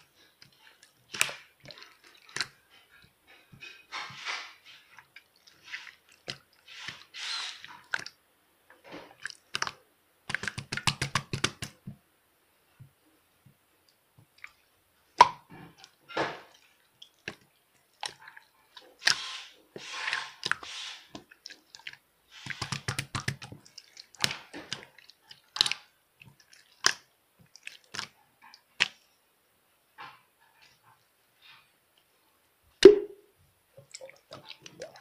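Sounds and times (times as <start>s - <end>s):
slime squished by hand: 9.1s - 11.8s, 19.0s - 29.0s.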